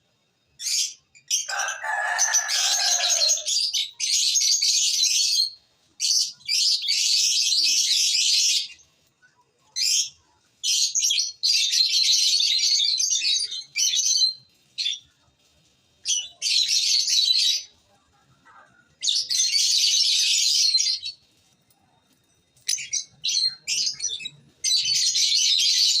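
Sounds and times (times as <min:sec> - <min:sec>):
lovebirds twittering: 0:00.6 - 0:08.8, 0:22.6 - 0:26.0.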